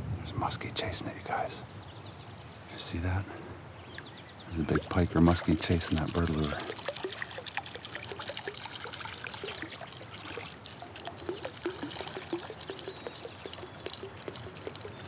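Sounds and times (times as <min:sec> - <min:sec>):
water trickling and splashing: 0:04.0 - 0:15.0.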